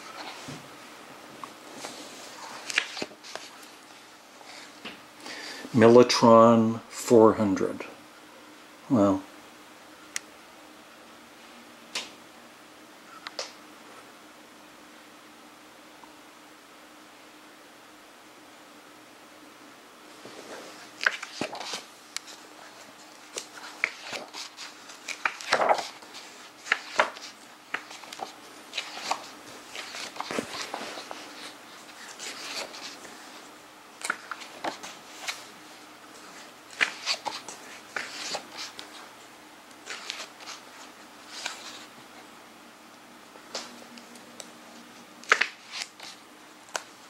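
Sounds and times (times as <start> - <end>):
book pages turning: 0.0 - 0.6, 1.4 - 3.9, 20.2 - 39.1, 39.7 - 41.9, 45.2 - 47.0.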